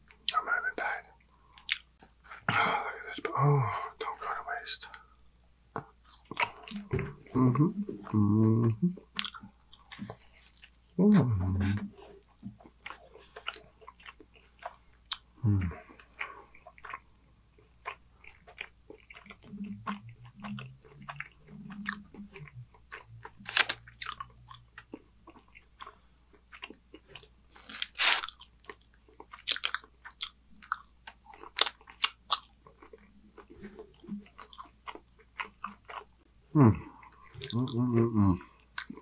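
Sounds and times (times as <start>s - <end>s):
chewing with wet mouth smacks: 1.6s - 2.5s, 9.1s - 10.7s, 11.7s - 17.0s, 17.6s - 36.1s, 38.4s - 39.0s
crunchy bites: 23.4s - 24.3s, 27.5s - 32.6s.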